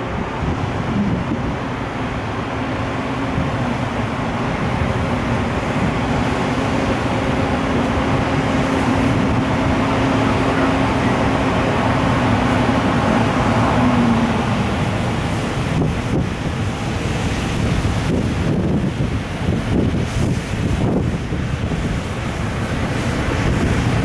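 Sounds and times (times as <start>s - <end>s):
electric locomotive hum: 0.0s - 24.0s
freight train rumble: 0.0s - 24.0s
wind noise on microphone: 0.0s - 24.0s.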